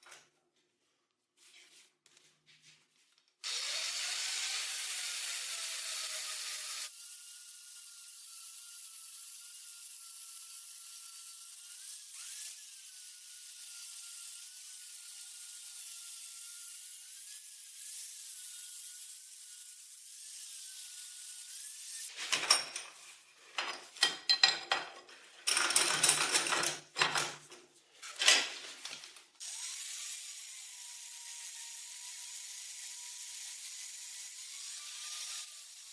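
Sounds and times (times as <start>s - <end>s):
small power tool whining: 3.4s - 22.1s, 29.4s - 35.9s.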